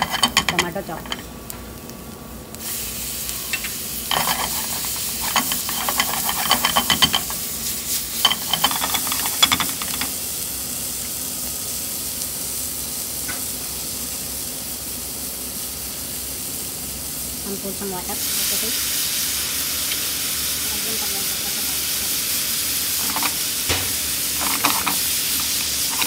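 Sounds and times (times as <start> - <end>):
vegetables sizzling in hot oil: 0.0 - 26.0
stirring clicks and scrapes: 4.1 - 7.4, 23.0 - 26.0.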